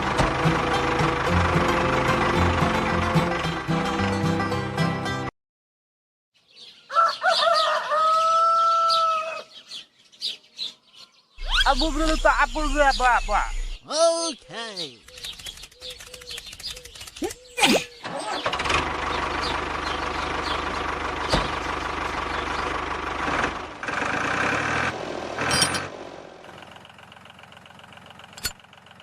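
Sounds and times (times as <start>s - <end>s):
tractor motor running: 0.0s - 4.4s, 18.0s - 29.0s.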